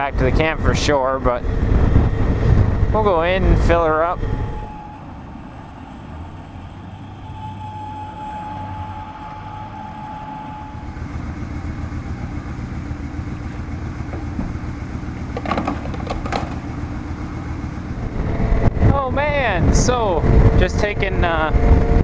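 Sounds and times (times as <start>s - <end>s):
road and wind noise: 0.0s - 22.0s
motorcycle engine running: 10.6s - 19.4s.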